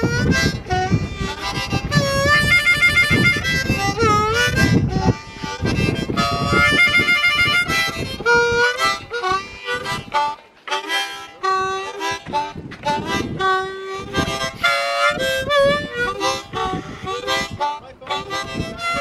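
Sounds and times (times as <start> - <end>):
harmonica playing: 0.0 - 19.0.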